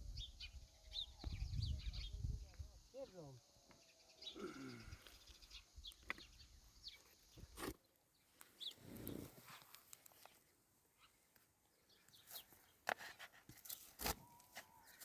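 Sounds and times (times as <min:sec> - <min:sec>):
bird chirps: 0:00.0 - 0:07.6.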